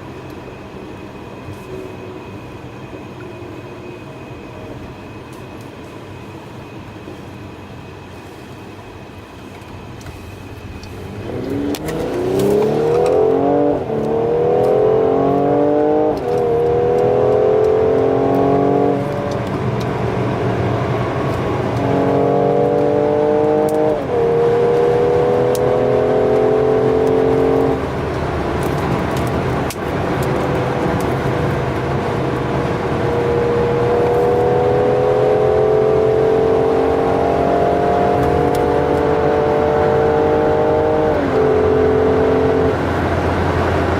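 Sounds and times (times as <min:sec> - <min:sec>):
car engine accelerating: 0:10.7 - 0:43.9.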